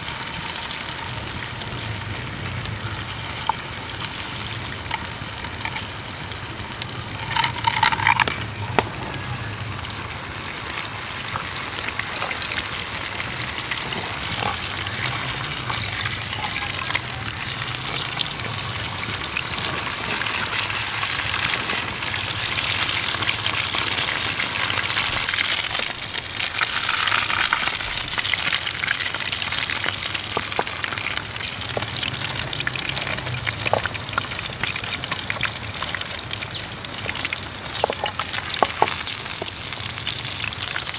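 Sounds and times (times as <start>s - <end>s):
creek running: 0.0s - 40.1s
food sizzling in a pan: 0.0s - 40.9s.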